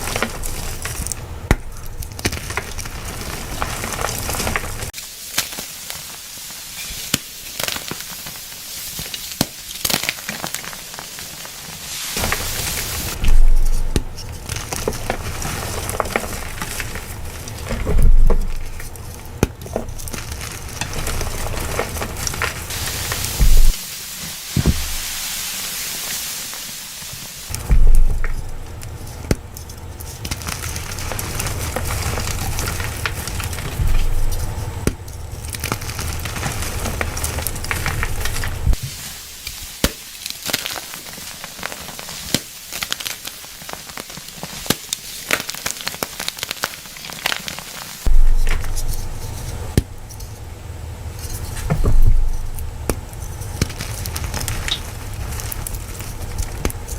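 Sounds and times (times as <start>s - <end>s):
steady low rumble: 0.0s - 5.0s, 12.2s - 25.4s, 27.5s - 38.8s, 48.1s - 56.9s
chalk being crushed: 0.0s - 56.9s.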